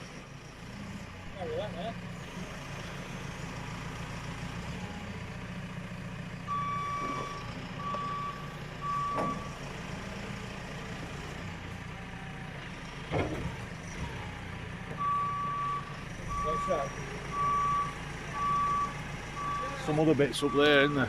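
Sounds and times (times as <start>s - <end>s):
reversing alarm beeps: 6.5s - 9.6s, 15.0s - 19.9s.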